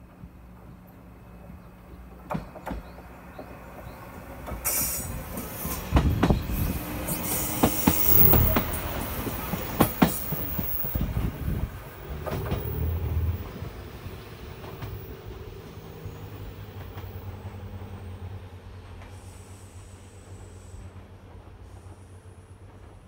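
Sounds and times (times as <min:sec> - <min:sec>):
railcar rumble and hum: 0:00.0 - 0:23.0
train wheels clacking over rail joints: 0:00.2 - 0:13.9.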